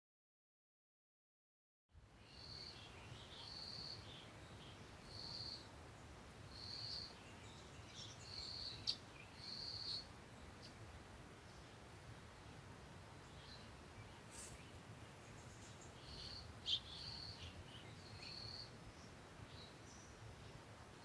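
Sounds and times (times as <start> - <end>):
faint bird chirps: 2.2 - 5.7, 6.5 - 10.8, 13.2 - 21.0.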